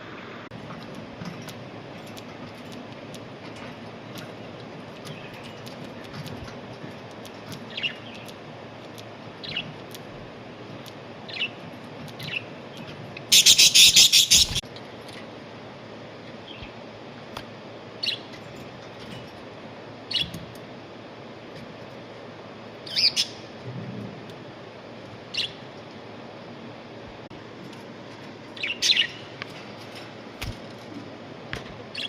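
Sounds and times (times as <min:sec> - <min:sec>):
budgerigars chirping: 0:13.3 - 0:14.6, 0:22.9 - 0:23.5, 0:28.6 - 0:29.3.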